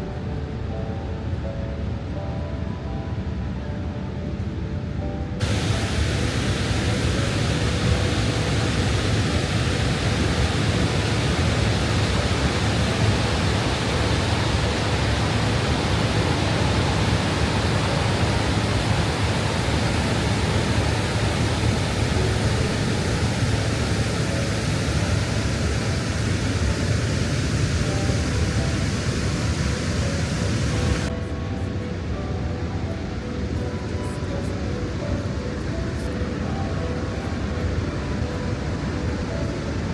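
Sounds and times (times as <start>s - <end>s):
waterfall rushing: 5.4s - 31.2s.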